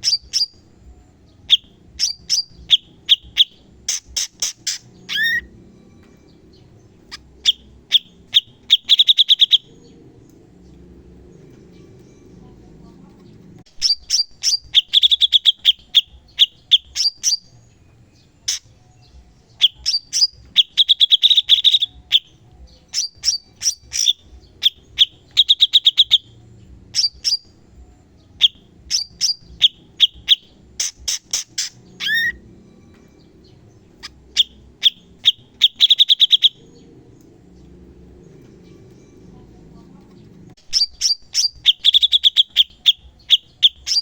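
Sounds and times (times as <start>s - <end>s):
songbird singing rapid bursts: 0.0s - 0.7s, 1.3s - 5.5s, 6.2s - 10.3s, 13.7s - 27.6s, 28.2s - 39.0s, 40.6s - 44.0s.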